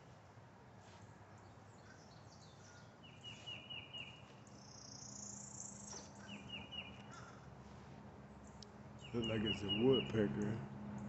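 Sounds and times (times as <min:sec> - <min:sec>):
bird calling high notes: 0:09.0 - 0:10.2.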